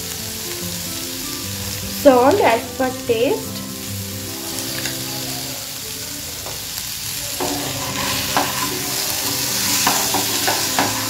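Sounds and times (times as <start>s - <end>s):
potatoes sizzling in oil: 0.0s - 11.0s
wooden spatula scraping pan: 7.4s - 11.0s.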